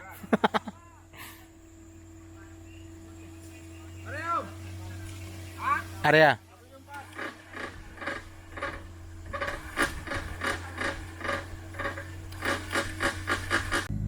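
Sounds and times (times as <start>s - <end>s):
steady low hum: 0.0s - 14.0s
rhythmic rasping strokes: 3.6s - 14.0s.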